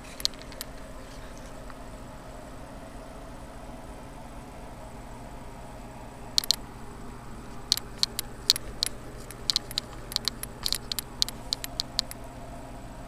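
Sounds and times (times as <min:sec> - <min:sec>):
short sharp clicks: 0:06.4 - 0:06.6, 0:07.6 - 0:12.2.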